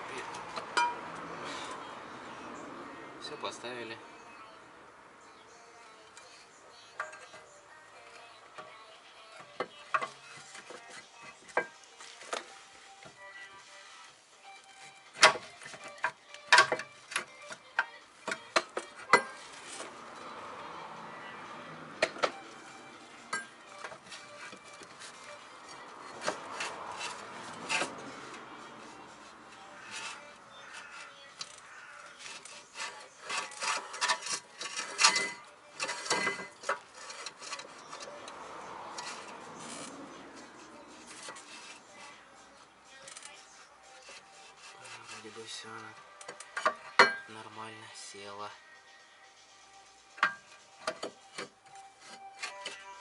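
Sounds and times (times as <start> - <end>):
scraping rub: 19.2 - 20.8, 22.0 - 46.9, 50.2 - 53.0.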